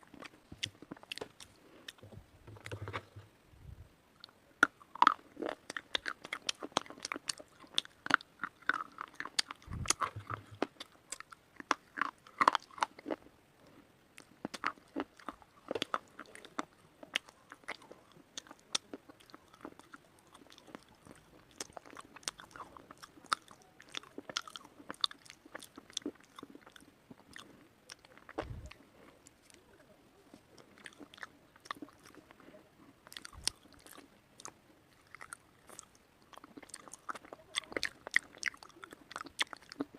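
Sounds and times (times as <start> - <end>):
dull low thumps: 2.0 - 3.9, 9.6 - 10.6, 28.4 - 28.8.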